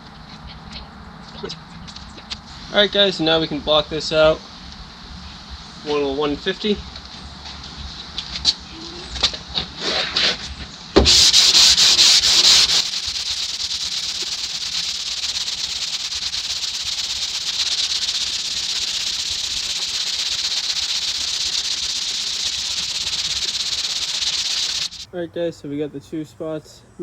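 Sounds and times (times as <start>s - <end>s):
sandpaper sanding metal panel: 11.0s - 25.1s.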